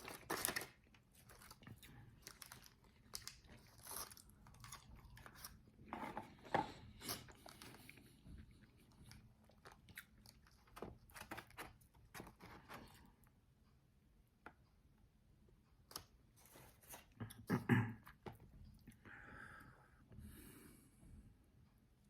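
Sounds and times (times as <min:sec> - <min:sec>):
chewing crispy fried chicken: 0:00.0 - 0:05.7, 0:06.3 - 0:13.2.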